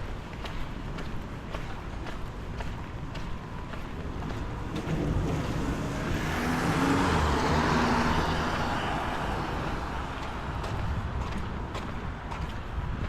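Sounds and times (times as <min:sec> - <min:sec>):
car passing on wet street: 0:04.0 - 0:12.9.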